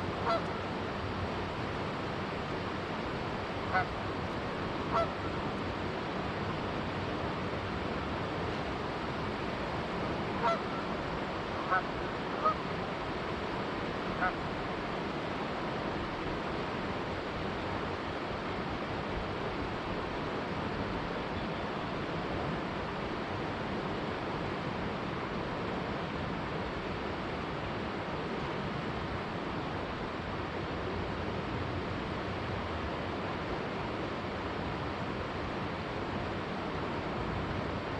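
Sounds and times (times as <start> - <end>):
river rushing: 0.0 - 37.9
goose honks: 0.2 - 0.5, 3.7 - 3.9, 4.9 - 5.4, 10.4 - 10.8, 11.6 - 12.6.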